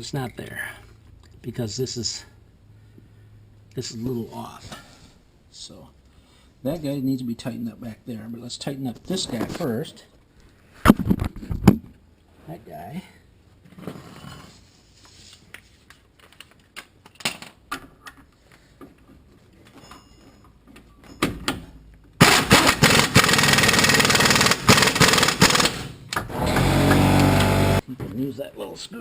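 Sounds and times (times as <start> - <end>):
impact wrench hammering: 22.2 - 27.8.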